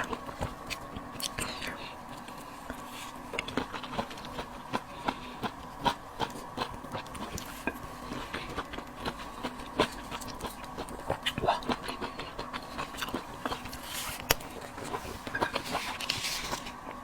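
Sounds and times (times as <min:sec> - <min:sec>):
chewing with wet crunches: 0:00.0 - 0:17.0
faint steady hum: 0:00.0 - 0:17.0.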